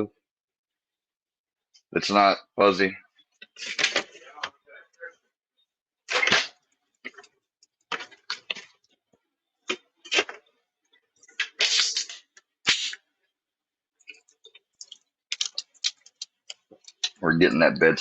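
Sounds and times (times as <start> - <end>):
crinkling and scraping: 3.4 - 4.6, 6.1 - 12.5, 14.0 - 17.2.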